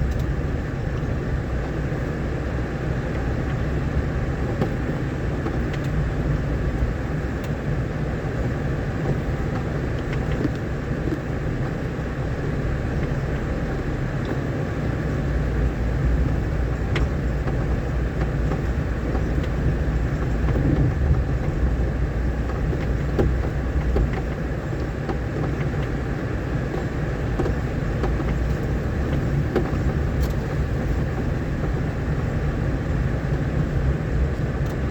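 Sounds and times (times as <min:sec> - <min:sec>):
vehicle engine and tyres rumbling: 0:00.0 - 0:34.9
faint knocks from rough road: 0:04.4 - 0:07.6, 0:16.7 - 0:34.9.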